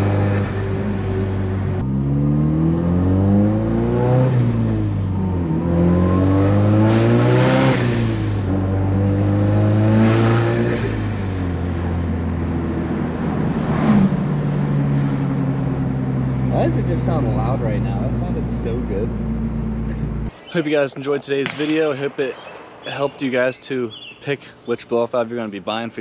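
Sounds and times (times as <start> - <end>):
car engine revving: 0.0 - 20.3.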